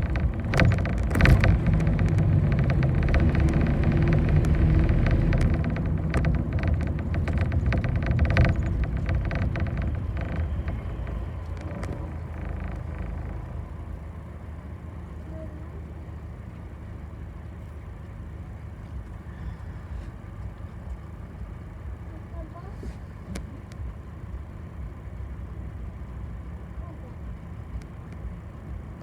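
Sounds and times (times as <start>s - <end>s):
fittings rattling: 0.0s - 13.8s
bus engine and road rumble: 0.0s - 29.0s.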